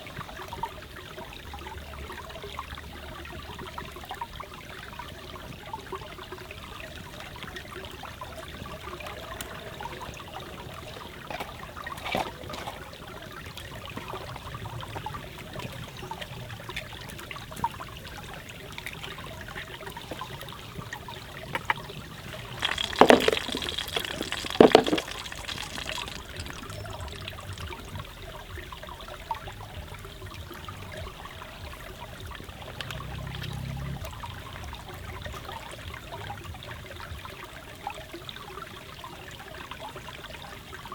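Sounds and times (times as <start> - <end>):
stream trickling: 0.0 - 40.9
sharp crackles: 22.4 - 27.9.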